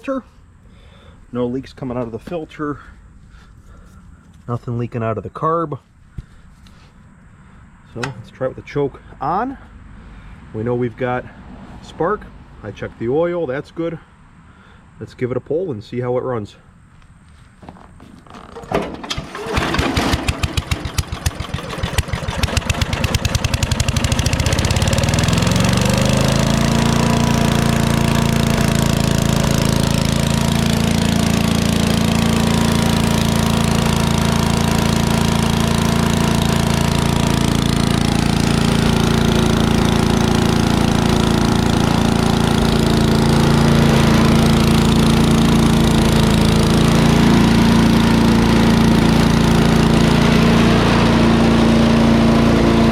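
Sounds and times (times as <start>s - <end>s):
small engine starting and running: 18.2s - 52.9s.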